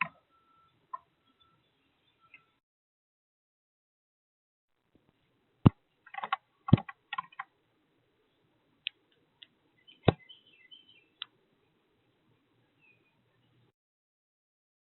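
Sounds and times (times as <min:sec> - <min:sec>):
birds chirping: 0:00.0 - 0:02.6, 0:08.2 - 0:13.7.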